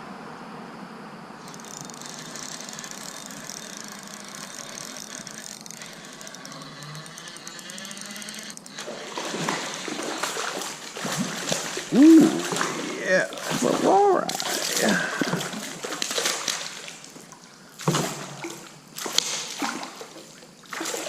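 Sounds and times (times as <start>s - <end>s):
fishing reel ticking: 1.4s - 12.2s
fish splashing: 1.4s - 21.0s.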